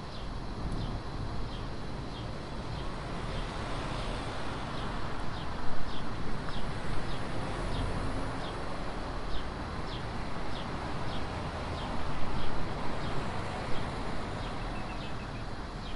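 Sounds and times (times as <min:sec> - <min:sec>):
small bird chirping: 0:14.4 - 0:15.9.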